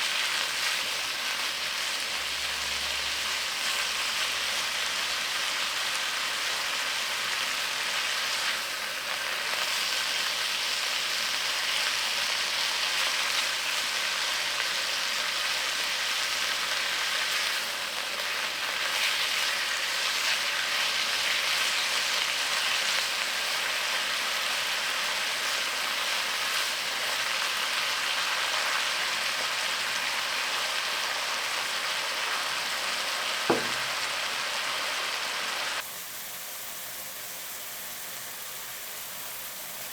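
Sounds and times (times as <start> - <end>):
food sizzling in hot oil: 0.0 - 39.9
sharp knock: 33.5 - 34.0.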